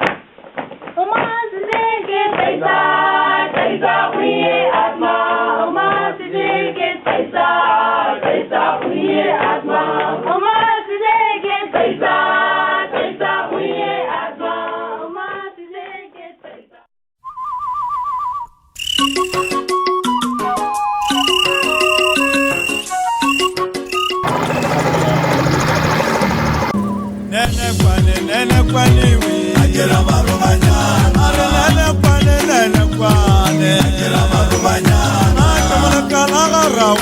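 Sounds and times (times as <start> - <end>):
group of voices singing: 1.8 - 16.8, 24.2 - 37.0
warbling electronic tone: 24.2 - 27.4.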